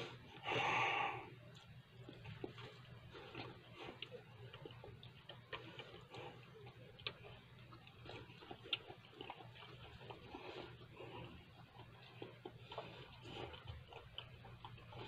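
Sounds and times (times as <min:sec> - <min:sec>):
chewing with wet mouth clicks: 0:01.3 - 0:15.0.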